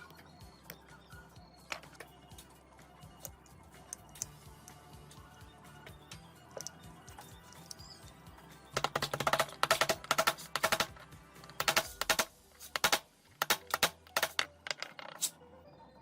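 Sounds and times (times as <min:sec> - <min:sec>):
background music: 0:00.0 - 0:16.0
rapid sharp clicks and taps: 0:08.7 - 0:14.4.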